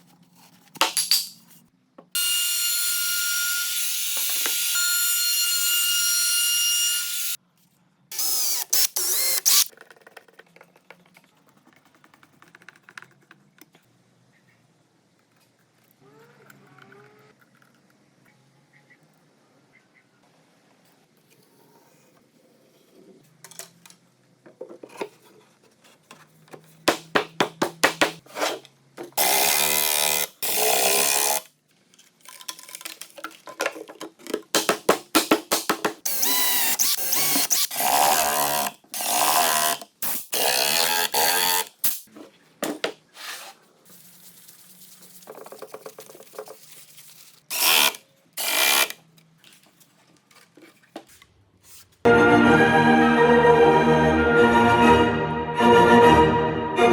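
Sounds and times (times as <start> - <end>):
power tool bursts: 36.0 - 42.0, 47.5 - 48.9.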